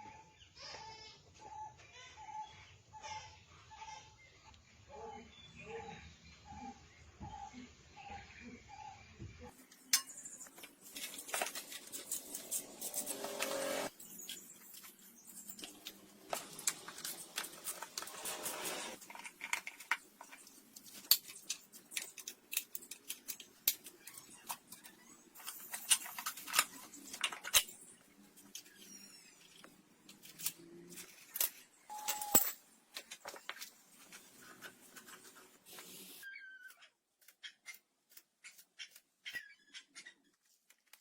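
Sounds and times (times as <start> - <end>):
brief tone: 31.9 - 32.5.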